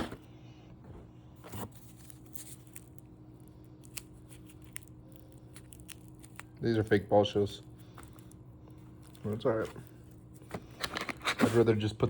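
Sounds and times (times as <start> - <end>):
packaging rustling: 1.4 - 7.1.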